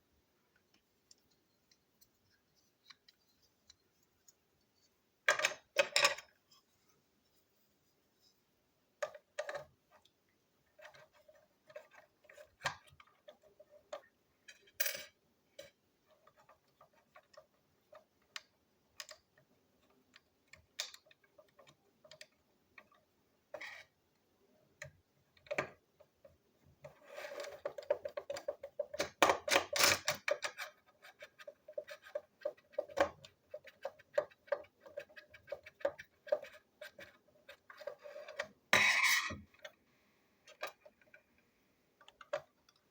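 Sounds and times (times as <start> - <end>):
plastic toy parts clicking: 27.4 - 38.5.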